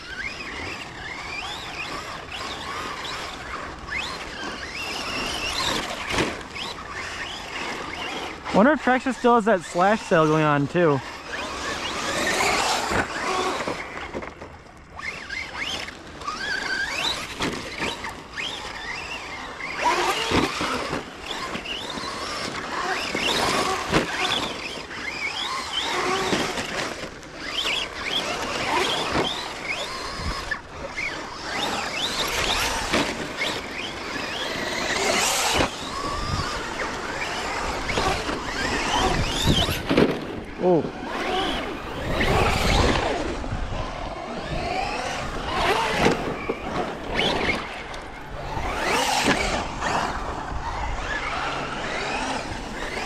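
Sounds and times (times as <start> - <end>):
electric toy truck motors whining: 0.0 - 53.0.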